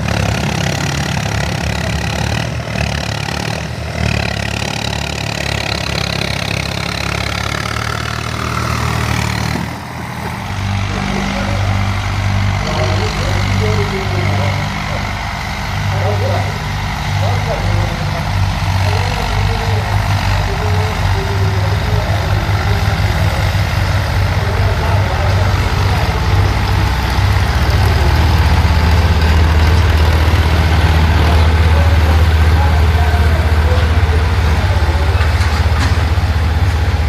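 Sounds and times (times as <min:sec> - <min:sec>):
tractor diesel engine under load: 0:00.0 - 0:37.0.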